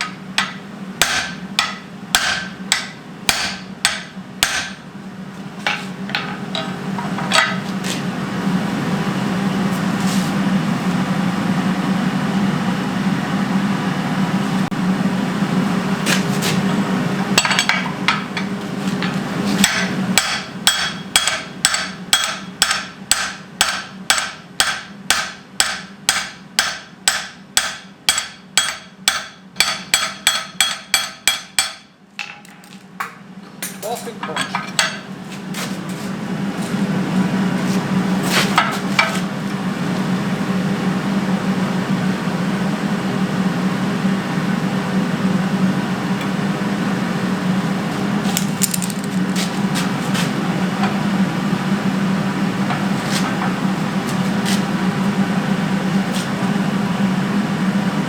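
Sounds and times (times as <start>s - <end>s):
hammer striking hot steel: 0.0s - 4.9s, 5.6s - 7.7s, 17.4s - 32.4s.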